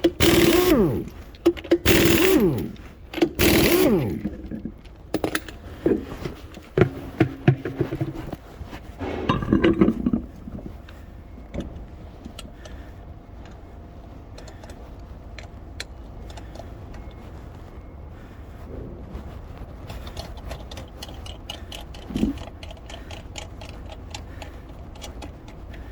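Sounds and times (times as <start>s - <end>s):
low steady hum: 0.0s - 25.9s
metal clinks of wheel tools: 5.1s - 6.1s.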